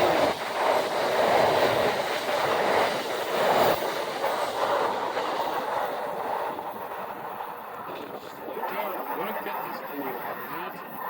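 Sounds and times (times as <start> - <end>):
train wheels rumbling over rails: 0.0 - 7.6.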